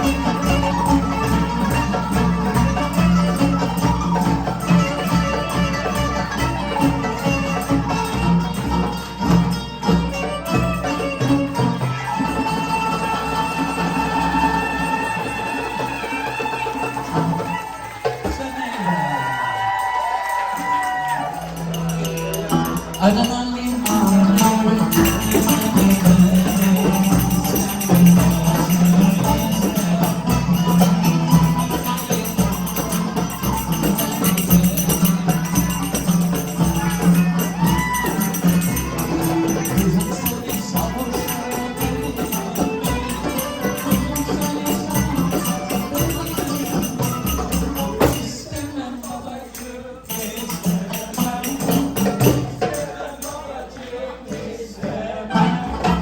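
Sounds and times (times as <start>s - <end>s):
rapid hand drum strokes: 20.7s - 49.1s.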